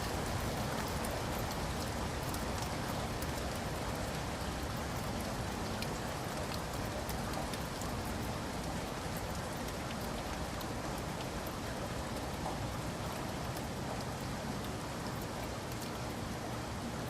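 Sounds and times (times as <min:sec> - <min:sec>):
raindrops pattering on surfaces: 0:00.0 - 0:17.0
steady rain falling: 0:00.0 - 0:17.0.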